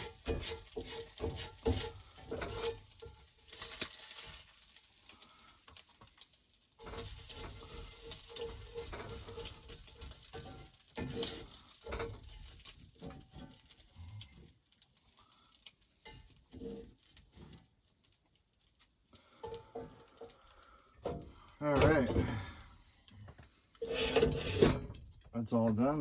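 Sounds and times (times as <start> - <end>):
food sizzling in a pan: 0.0 - 24.9
utensil knocking against a pan: 0.1 - 2.7.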